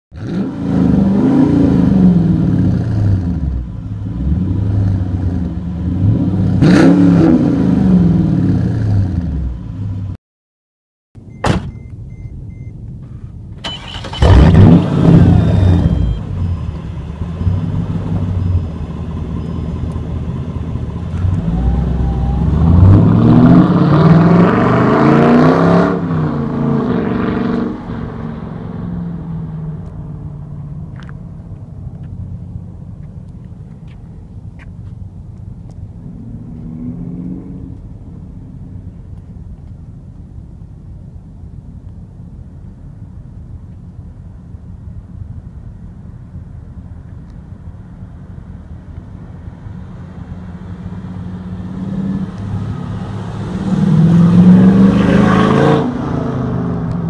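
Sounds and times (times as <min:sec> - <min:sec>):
car engine revving: 0:13.8 - 0:29.9, 0:50.2 - 0:57.0.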